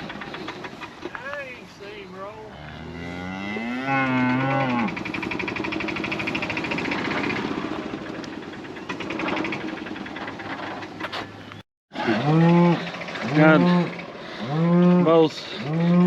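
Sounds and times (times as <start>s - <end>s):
cow mooing: 2.5s - 5.1s, 12.0s - 16.0s
herd lowing: 12.0s - 16.0s.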